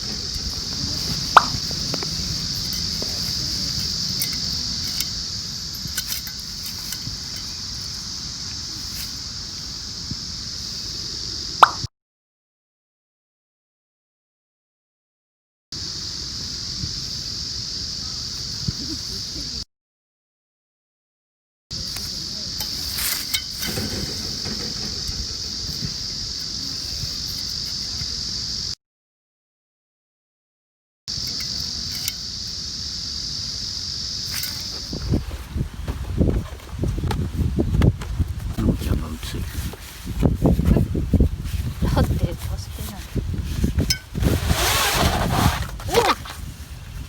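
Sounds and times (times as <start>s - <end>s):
sharp pops: 0.0s - 5.2s, 11.6s - 11.9s
high-pitched insect drone: 0.0s - 11.8s, 15.8s - 19.6s, 21.8s - 28.8s, 31.1s - 35.8s
steady high hiss: 0.0s - 11.8s, 15.8s - 19.6s, 21.8s - 28.8s, 31.1s - 47.0s
wood fire crackling: 22.0s - 28.0s.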